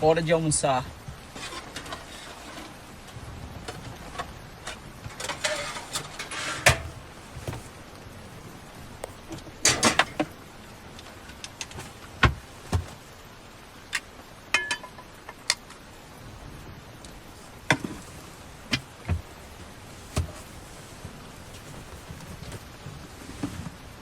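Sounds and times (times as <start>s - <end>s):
rain hissing: 0.0s - 24.0s
dishes and utensils knocking: 14.6s - 15.2s.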